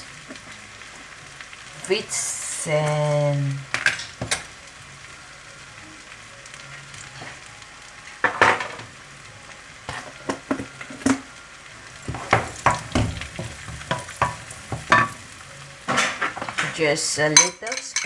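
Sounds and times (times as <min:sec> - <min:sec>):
eggs sizzling in a frying pan: 0:00.0 - 0:18.0
utensil scraping and tapping pan: 0:09.9 - 0:11.3, 0:12.0 - 0:18.0.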